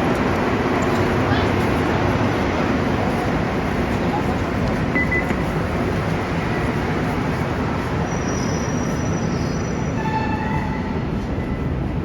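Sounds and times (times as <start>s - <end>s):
metro train rumbling: 0.0s - 12.0s.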